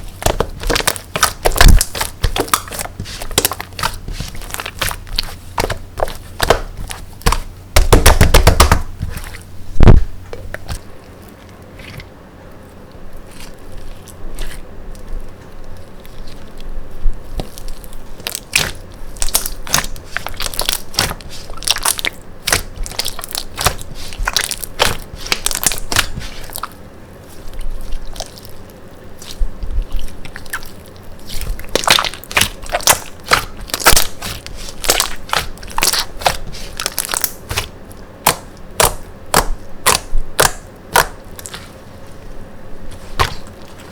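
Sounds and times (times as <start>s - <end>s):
slime clicking and popping: 31.3s - 41.7s.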